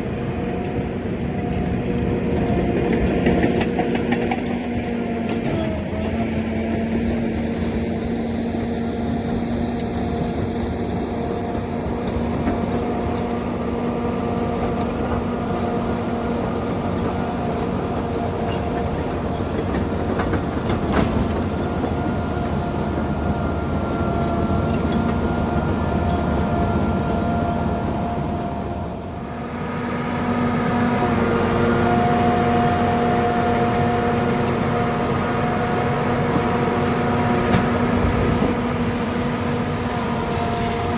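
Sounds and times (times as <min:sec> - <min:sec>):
diesel engine under load: 0:00.0 - 0:40.9
steel tracks clanking: 0:00.0 - 0:40.9.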